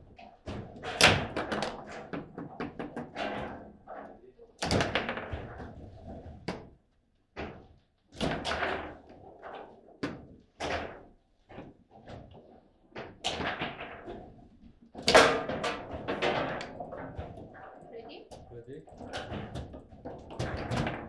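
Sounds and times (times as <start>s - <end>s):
table football ball clacks: 15.1s - 18.0s.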